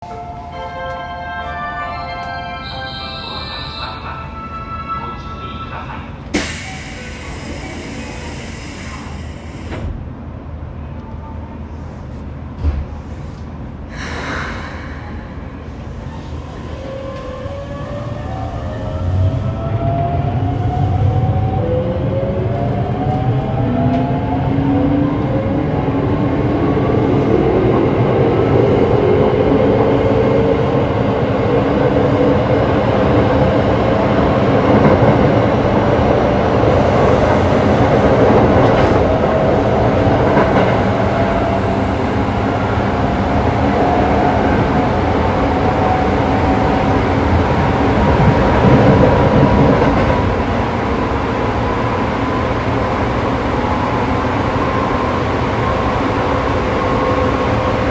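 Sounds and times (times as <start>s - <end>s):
train wheels rumbling on rails: 12.0s - 57.9s.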